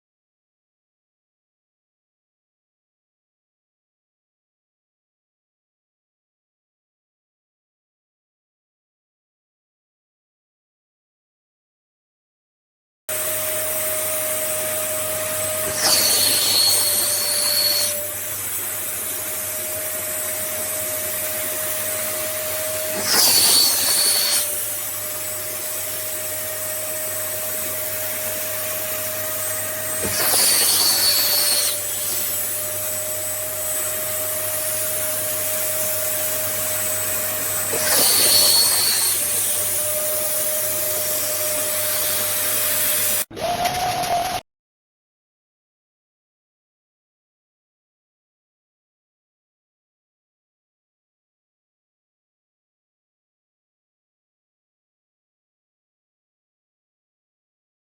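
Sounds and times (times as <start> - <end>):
spot cleaner suction motor whine: 13.1 - 44.4
high whistle of suction: 14.3 - 18.2, 22.0 - 24.5, 32.8 - 39.3.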